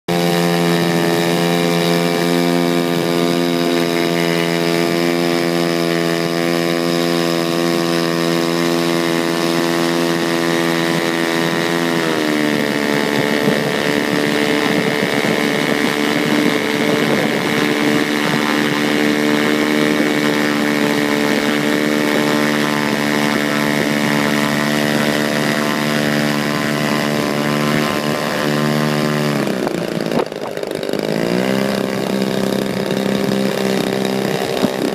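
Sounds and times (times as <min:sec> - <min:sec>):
two-stroke model plane engine: 0:00.1 - 0:34.9.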